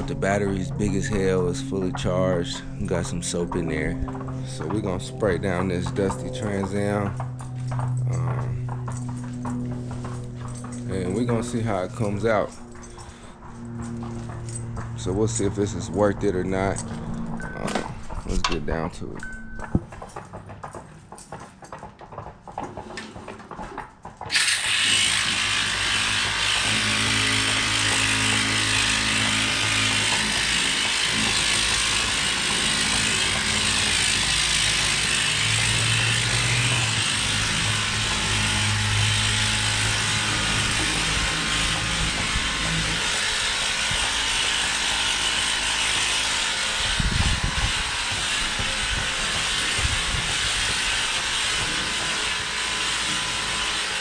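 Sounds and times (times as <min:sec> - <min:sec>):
pressure washer pump motor: 0:00.0 - 0:20.0, 0:22.9 - 0:54.0.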